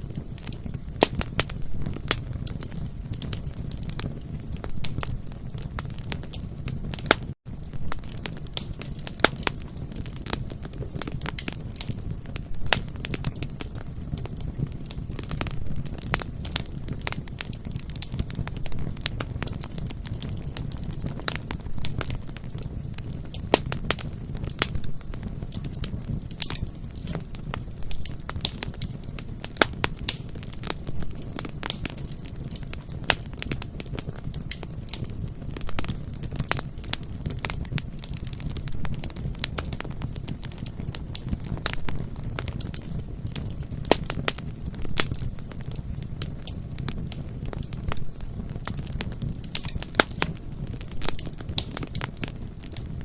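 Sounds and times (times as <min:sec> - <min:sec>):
low rumble of flames: 0:00.0 - 0:53.0
wood crackling and popping: 0:00.0 - 0:53.0.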